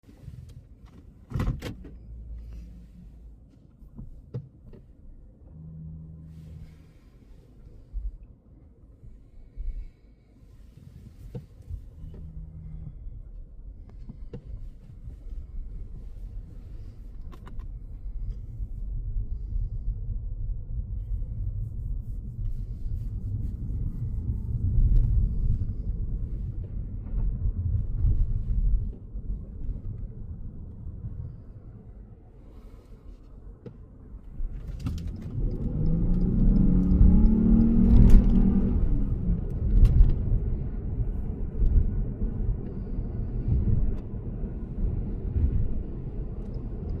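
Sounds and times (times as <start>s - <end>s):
road and tyre rumble: 0.0s - 47.0s
car engine accelerating: 5.4s - 7.8s, 10.9s - 18.6s, 34.3s - 47.0s.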